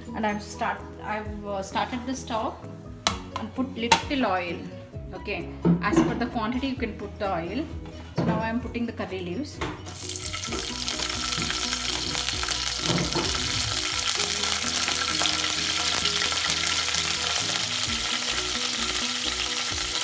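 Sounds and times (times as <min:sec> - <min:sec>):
leaves sizzling in hot oil: 0:09.9 - 0:20.0.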